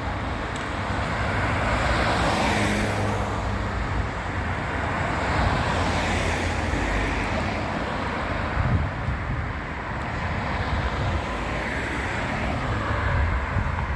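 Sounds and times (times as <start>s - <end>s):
city street traffic: 0.0s - 13.9s
wind buffeting microphone: 8.3s - 11.6s, 12.4s - 13.9s.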